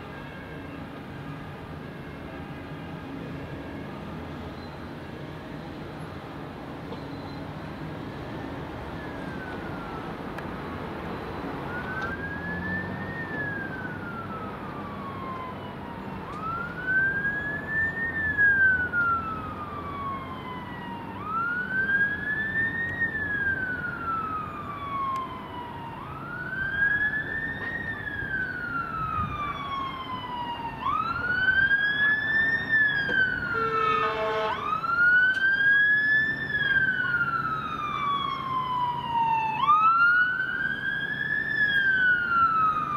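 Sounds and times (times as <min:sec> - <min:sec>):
emergency vehicle siren wailing: 0:00.0 - 0:42.9
horn blast: 0:33.6 - 0:34.6.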